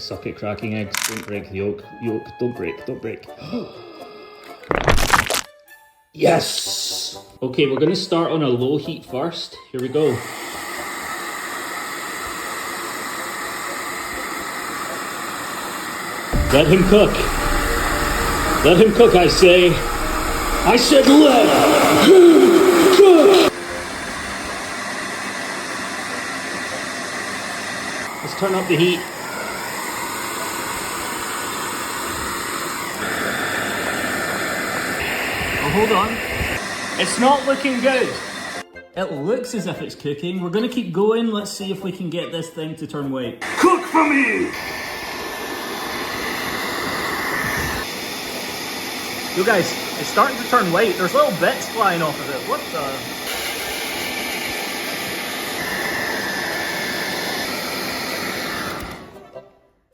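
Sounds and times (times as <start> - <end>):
hair dryer blowing: 10.0 - 38.6, 43.4 - 59.2.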